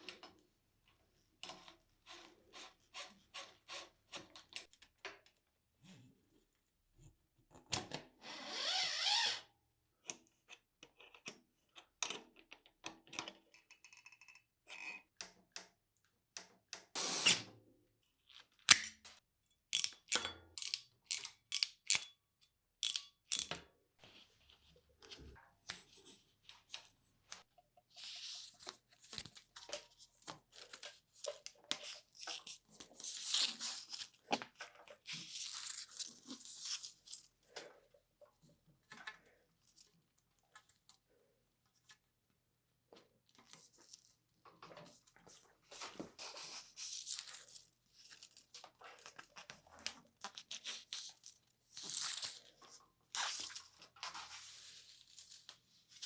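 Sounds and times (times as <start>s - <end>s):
hand tools and metal parts clicking: 22.8s - 23.6s.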